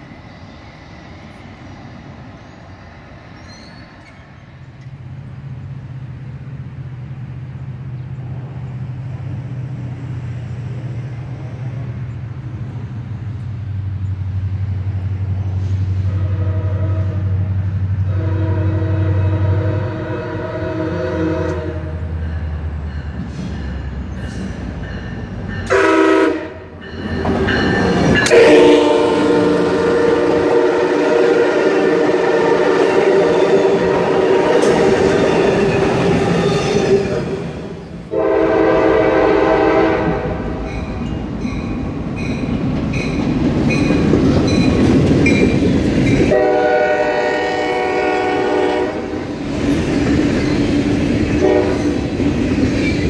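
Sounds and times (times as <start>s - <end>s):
train rumbling past: 0.0s - 53.0s
train horn blasts: 15.9s - 22.2s, 25.6s - 26.8s, 28.2s - 37.5s, 38.1s - 40.7s, 46.3s - 49.3s, 51.3s - 52.0s.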